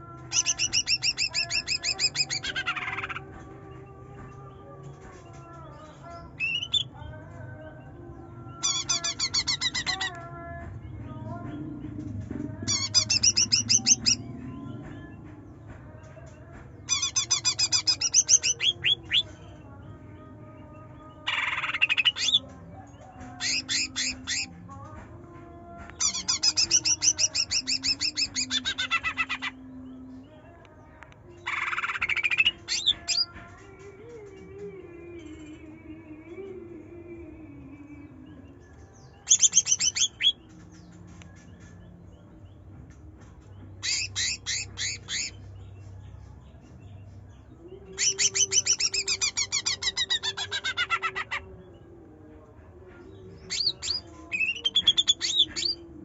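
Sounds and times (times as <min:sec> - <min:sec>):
bird singing rapid high notes: 0:00.3 - 0:03.2, 0:38.9 - 0:40.5.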